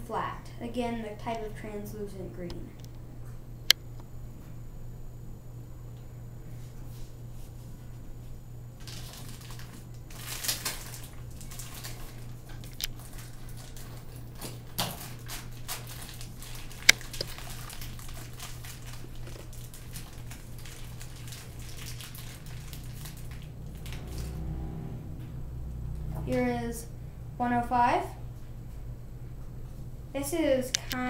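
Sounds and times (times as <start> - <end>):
steady low hum: 0.0 - 31.0
plastic packaging crinkling: 8.8 - 24.4.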